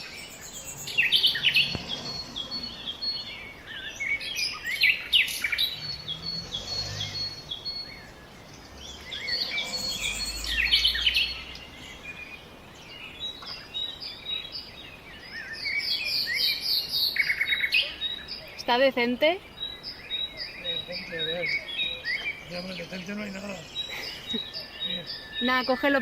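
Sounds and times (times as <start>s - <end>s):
low outdoor rumble: 0.0s - 13.3s
songbirds chirping and singing: 0.0s - 26.0s.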